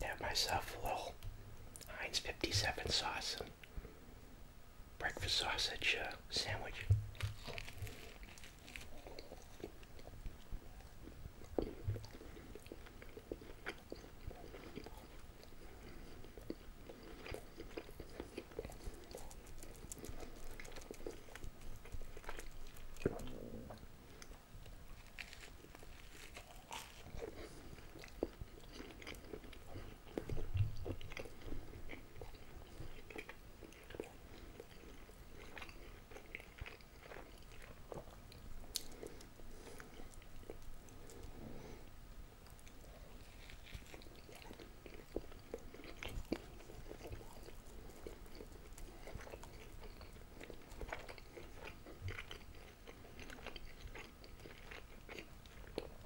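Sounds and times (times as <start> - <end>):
crunchy bites into toast: 6.6 - 10.1, 24.9 - 41.2
wet chewing: 7.1 - 41.7, 42.4 - 56.0.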